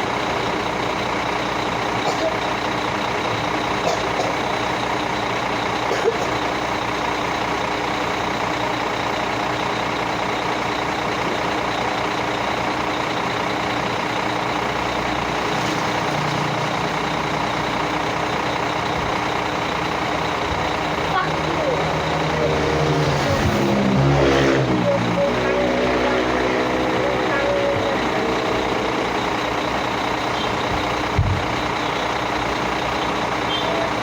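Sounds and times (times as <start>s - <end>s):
heavy vehicle engine running: 0.0s - 34.0s.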